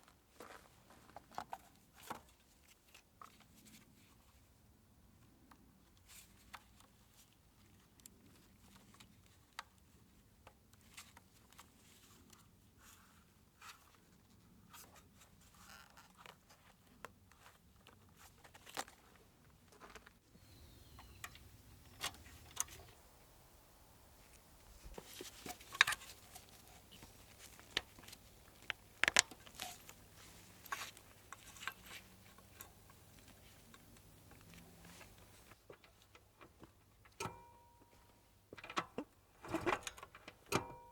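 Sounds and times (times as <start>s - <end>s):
faint low hum: 20.3s - 35.6s
clicks and taps of hand tools: 24.3s - 35.9s.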